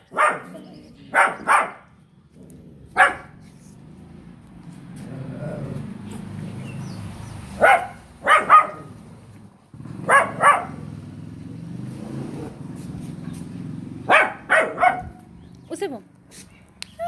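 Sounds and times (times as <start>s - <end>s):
young dog barking: 0.0s - 1.9s, 2.9s - 3.4s, 7.6s - 9.0s, 10.0s - 10.9s, 14.0s - 15.3s.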